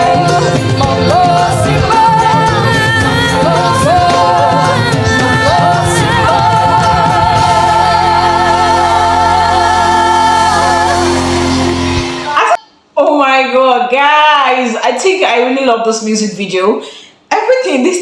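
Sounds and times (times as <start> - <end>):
singers in harmony: 0.0 - 12.5
sustained bass notes: 0.0 - 12.5
pop band backing: 0.0 - 12.6.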